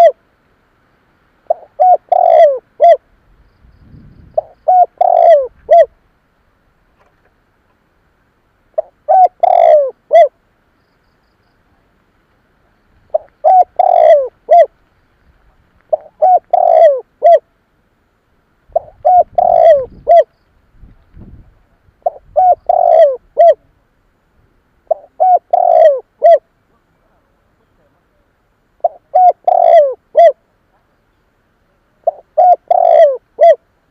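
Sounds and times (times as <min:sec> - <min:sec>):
dove cooing: 0:00.0 - 0:00.2, 0:01.5 - 0:03.0, 0:04.3 - 0:06.0, 0:08.7 - 0:10.4, 0:13.1 - 0:14.8, 0:15.9 - 0:17.5, 0:18.7 - 0:20.3, 0:21.7 - 0:23.8, 0:24.8 - 0:28.0, 0:28.8 - 0:30.5, 0:31.9 - 0:33.7.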